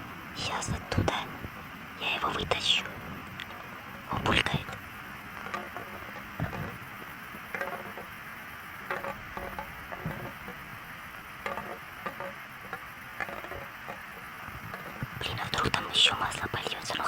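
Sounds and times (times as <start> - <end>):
steady hiss: 0.0 - 17.0
soft clicks and knocks: 2.4 - 8.2, 8.8 - 15.8.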